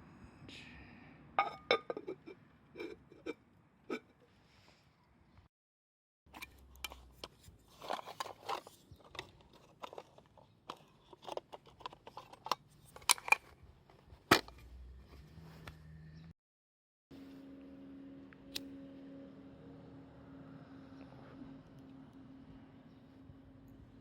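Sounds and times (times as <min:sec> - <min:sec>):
light rustling of handled things: 0:06.3 - 0:15.9.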